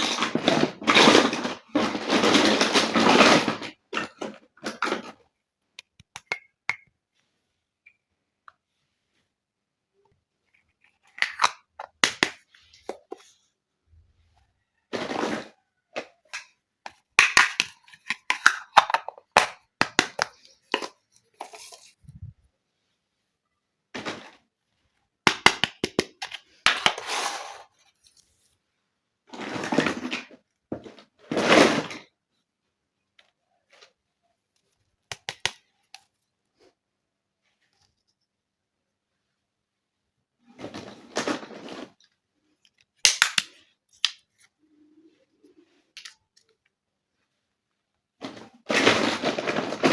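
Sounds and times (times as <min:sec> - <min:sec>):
plastic toy pieces scraping: 0:00.0 - 0:05.2, 0:26.1 - 0:28.2, 0:48.2 - 0:49.9.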